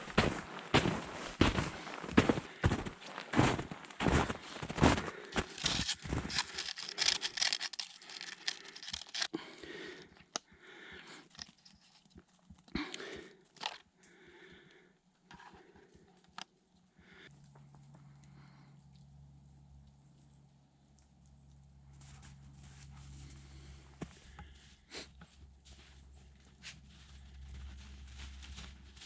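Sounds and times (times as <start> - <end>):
footsteps crunching through snow: 0.0 - 9.3, 22.0 - 29.0.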